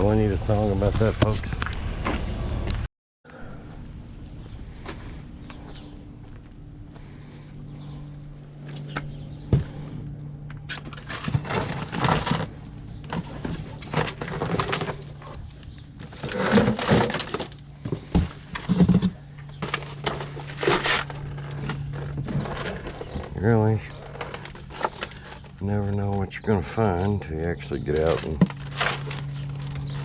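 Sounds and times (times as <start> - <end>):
steady low hum: 0.0 - 30.0
scrap metal clattering: 10.8 - 25.5.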